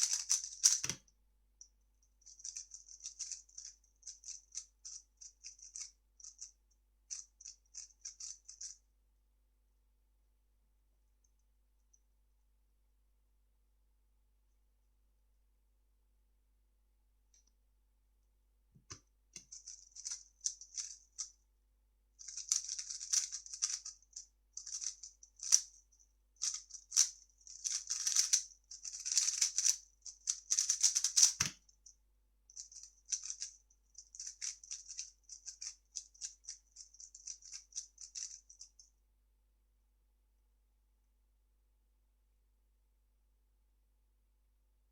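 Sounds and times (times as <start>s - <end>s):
plastic puzzle cube clicking: 0.0s - 1.0s, 26.5s - 31.6s.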